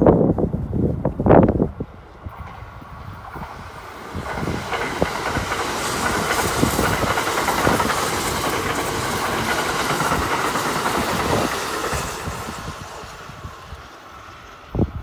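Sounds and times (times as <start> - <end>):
train wheels rushing on rail: 0.0 - 15.0
wheels clicking over rail joints: 2.2 - 12.8.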